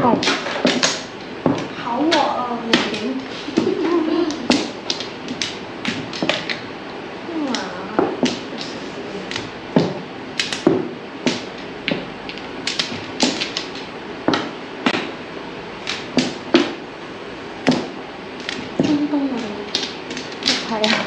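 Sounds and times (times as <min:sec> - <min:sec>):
mahjong tiles clacking: 0:07.5 - 0:15.1.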